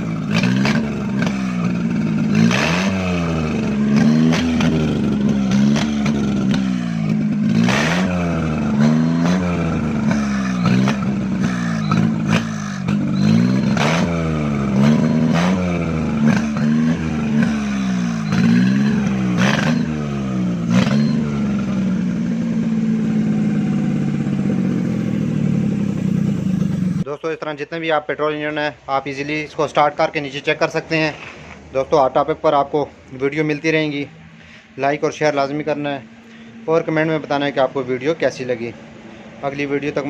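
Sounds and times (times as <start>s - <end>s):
car engine revving: 0.0s - 27.1s.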